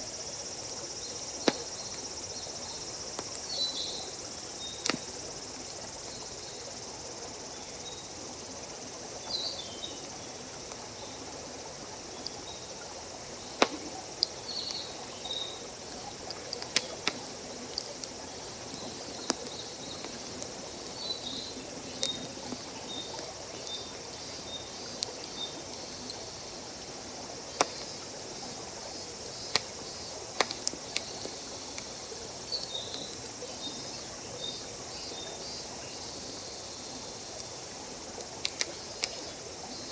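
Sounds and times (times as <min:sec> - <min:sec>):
steady background hiss: 0:00.0 - 0:39.9
campfire crackling and popping: 0:01.1 - 0:06.1, 0:10.4 - 0:26.5, 0:27.4 - 0:28.0, 0:29.3 - 0:32.0, 0:37.4 - 0:39.3.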